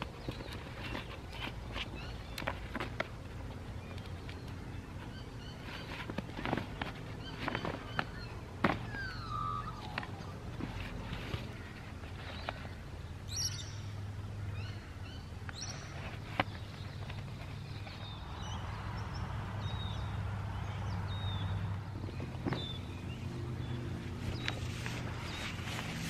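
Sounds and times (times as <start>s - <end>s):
birds chirping: 0.0s - 26.0s
low background hum: 0.0s - 26.0s.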